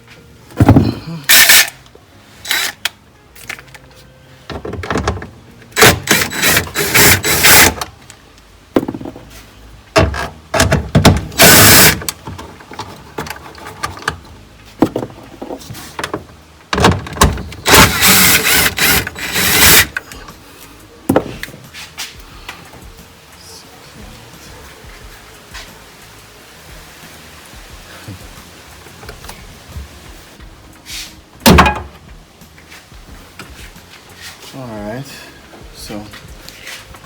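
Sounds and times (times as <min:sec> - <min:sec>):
power tool on fasteners: 0:01.3 - 0:01.8, 0:02.5 - 0:02.9, 0:05.8 - 0:07.9, 0:10.0 - 0:12.2, 0:16.8 - 0:20.0.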